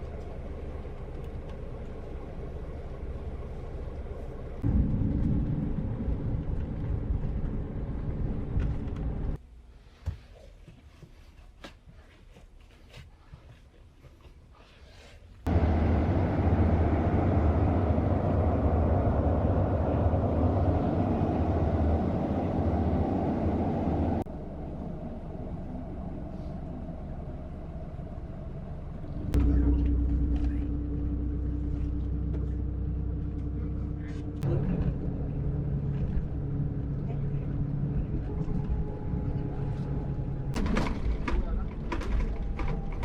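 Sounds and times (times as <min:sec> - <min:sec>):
coach road and engine rumble: 0:00.0 - 0:09.4, 0:15.5 - 0:43.0
steady hum: 0:15.5 - 0:40.6.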